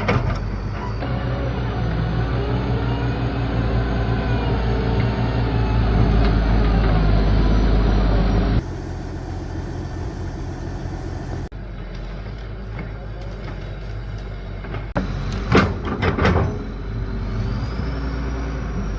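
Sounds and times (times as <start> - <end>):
heavy engine humming: 0.0 - 18.9.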